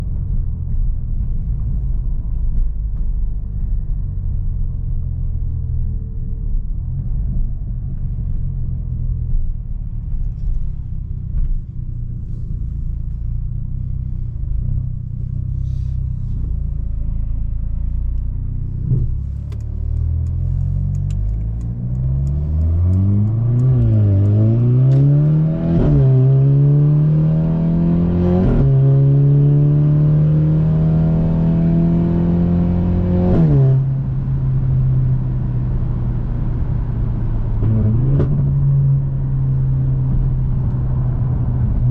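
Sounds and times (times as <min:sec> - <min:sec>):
car engine accelerating: 0:00.0 - 0:41.9
exhaust cracks on upshifts: 0:08.0 - 0:26.7.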